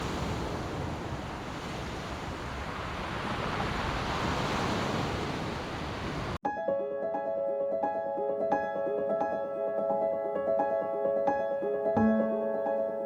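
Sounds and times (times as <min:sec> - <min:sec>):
surf washing onto beach: 0:00.0 - 0:06.4
piano music: 0:06.4 - 0:13.0.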